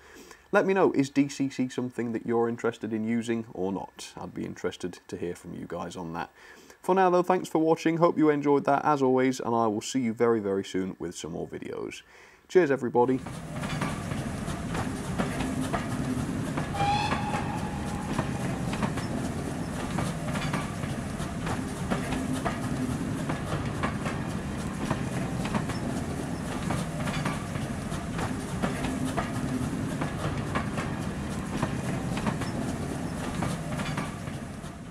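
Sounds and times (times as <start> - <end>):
railway carriages rumbling past: 13.2 - 34.9
wheels clicking over rail joints: 13.2 - 34.9.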